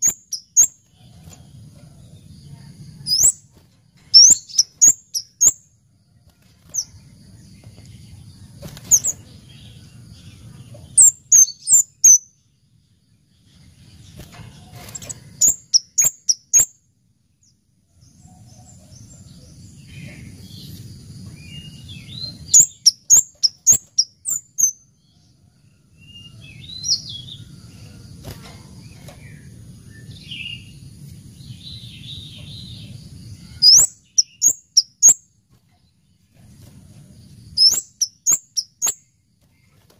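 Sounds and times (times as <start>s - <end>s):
bird high sharp chips: 37.6s - 39.0s.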